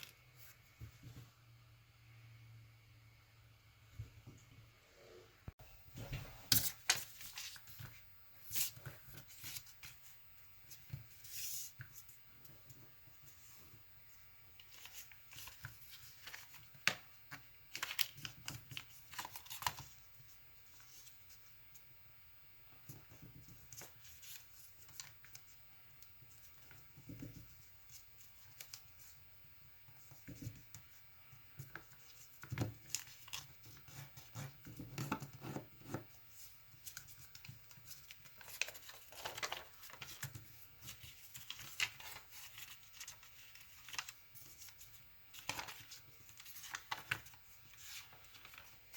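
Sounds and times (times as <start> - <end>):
paper crinkling and crackling: 14.6 - 21.4, 36.3 - 48.9.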